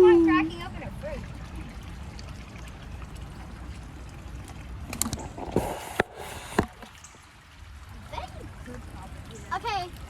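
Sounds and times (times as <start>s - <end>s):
water running from a pipe: 0.0s - 10.0s
hissing splash: 5.0s - 7.2s.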